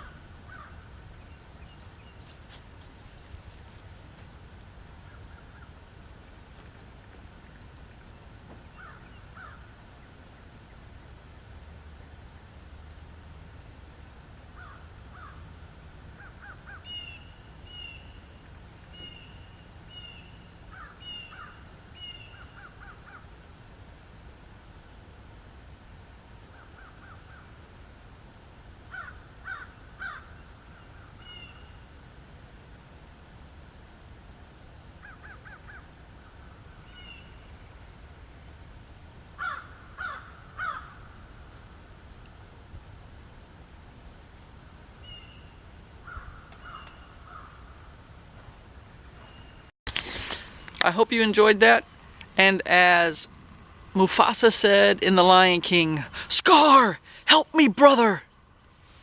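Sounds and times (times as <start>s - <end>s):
crow cawing: 0.0s - 0.8s, 8.8s - 9.6s, 14.6s - 15.4s, 20.7s - 21.6s, 28.9s - 30.3s, 39.4s - 41.0s, 46.0s - 47.7s
wild birds calling: 0.0s - 4.2s, 4.9s - 12.6s, 13.9s - 23.4s, 26.4s - 27.7s, 28.9s - 31.9s, 34.9s - 37.7s, 39.2s - 41.4s, 45.0s - 50.8s.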